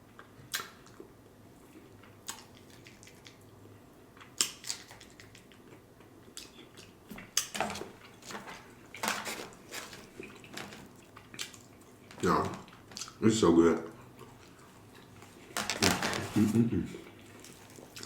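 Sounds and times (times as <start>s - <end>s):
crunchy chewing: 4.2s - 13.2s.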